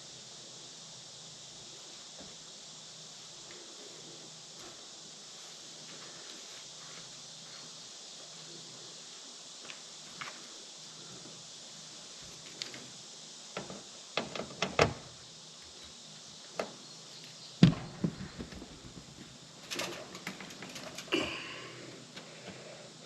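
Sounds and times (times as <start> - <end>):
small rattles: 15.7 - 23.0.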